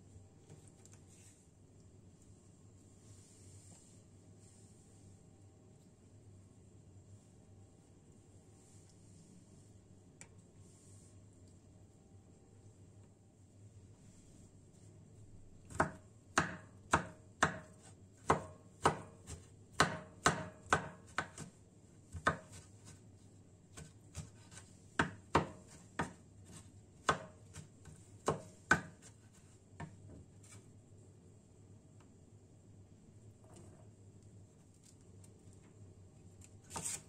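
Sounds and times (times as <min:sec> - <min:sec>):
knife chopping on cutting board: 0:15.7 - 0:23.0, 0:23.7 - 0:30.6, 0:36.7 - 0:37.0.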